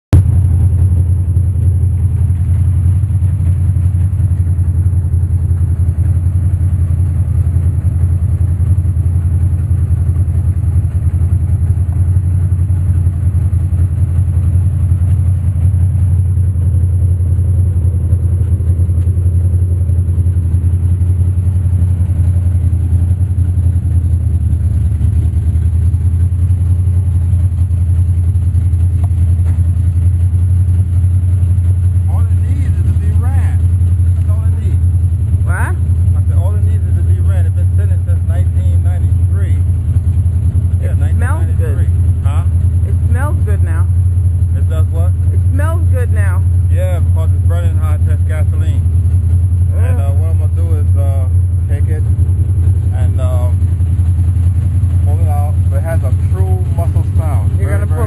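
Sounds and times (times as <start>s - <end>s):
car engine idling: 0.1s - 58.0s.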